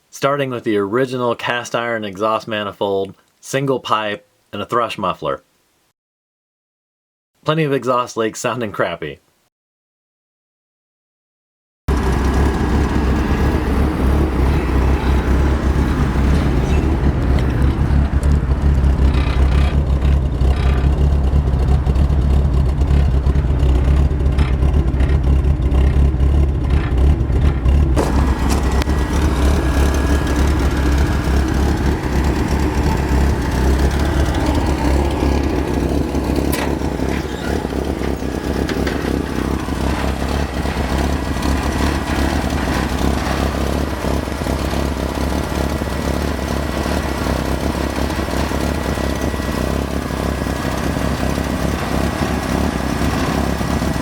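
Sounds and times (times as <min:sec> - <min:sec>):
rough car engine running: 0:11.9 - 0:54.0.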